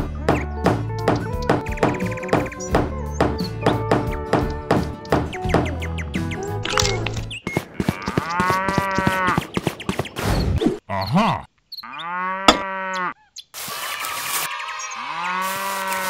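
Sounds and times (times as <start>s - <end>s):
cows mooing: 7.8s - 9.4s, 11.0s - 13.2s, 15.1s - 16.0s.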